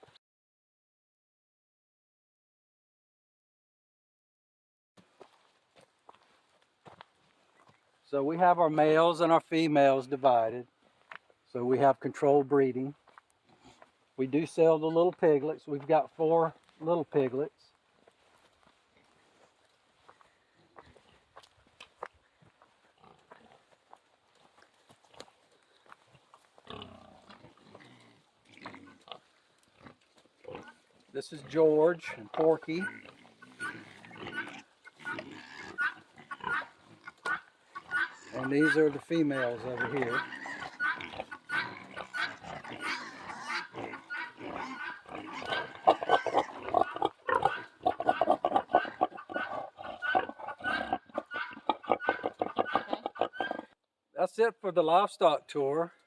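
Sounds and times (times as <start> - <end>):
pigs grunting: 23.0 - 23.7, 26.0 - 53.8.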